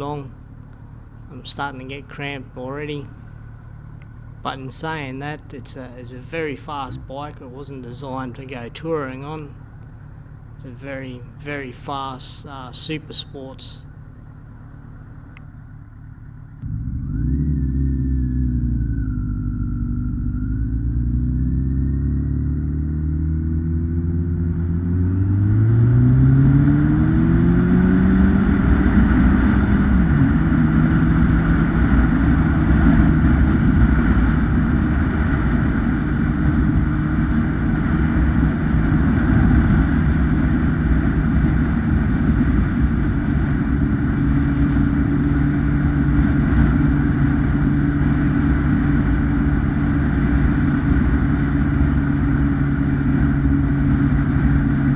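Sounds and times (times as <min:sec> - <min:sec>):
motorcycle engine pulling hard: 0:00.0 - 0:54.9
wind rushing on microphone: 0:25.2 - 0:54.9.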